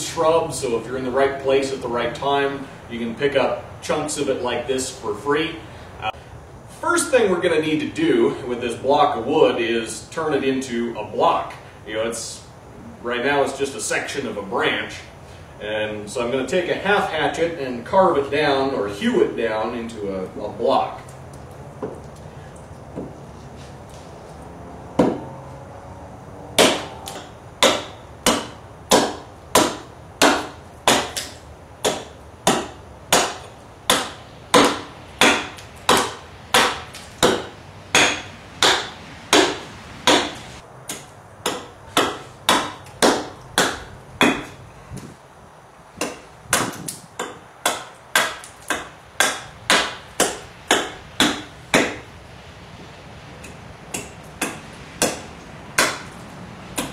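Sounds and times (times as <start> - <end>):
hatchet chopping wood: 25.0 - 25.4, 26.6 - 44.6, 46.0 - 52.1, 53.4 - 56.2.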